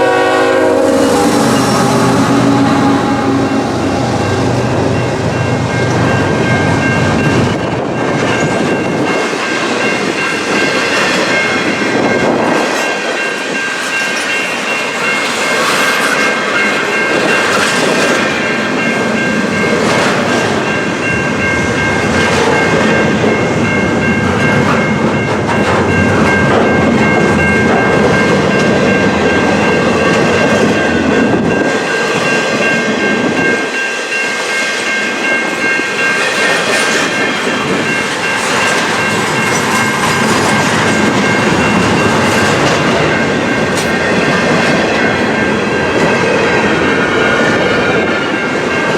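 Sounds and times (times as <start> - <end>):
train wheels clicking over rail joints: 35.8 - 47.8.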